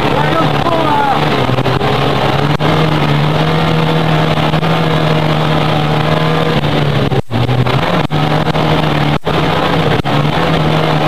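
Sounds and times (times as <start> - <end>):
racing car engine high revs: 0.0 - 11.0.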